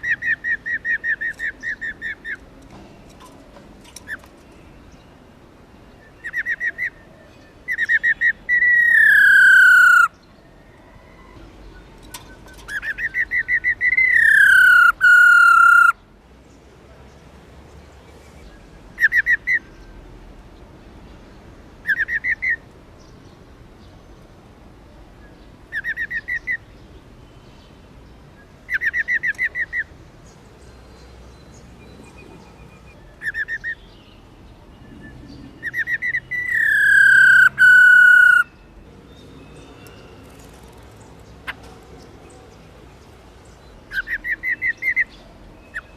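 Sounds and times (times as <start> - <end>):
bird rapid rolling trills: 12.2 - 15.9.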